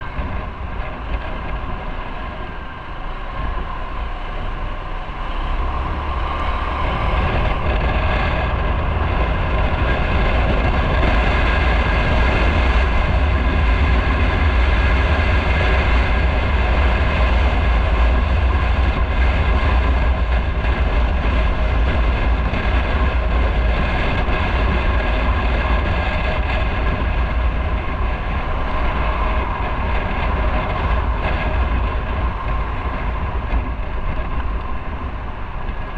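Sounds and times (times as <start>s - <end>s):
motorcycle engine and road noise: 0.0s - 35.9s
wind rumble on microphone: 0.0s - 35.9s.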